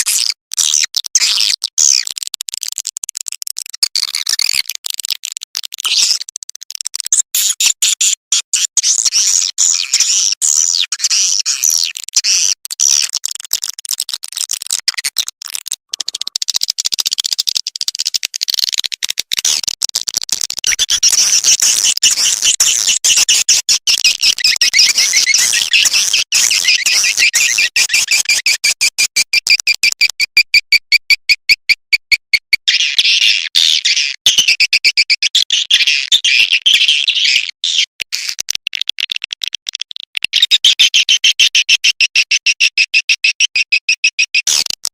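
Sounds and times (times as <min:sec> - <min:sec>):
evenly repeated chirps: 0:15.9 - 0:17.4, 0:20.6 - 0:38.3, 0:40.2 - 0:44.8.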